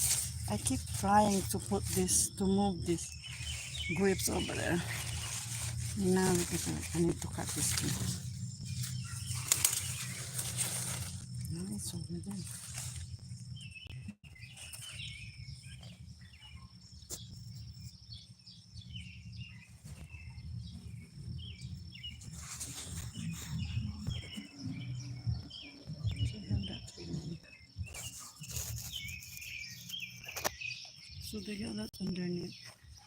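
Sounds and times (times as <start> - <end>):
low rumble: 0.0 - 14.2, 20.1 - 27.5
rustling: 0.0 - 16.2, 19.7 - 25.6, 27.0 - 30.8
high insect trill: 0.0 - 18.2
small birds chirping: 0.0 - 33.0.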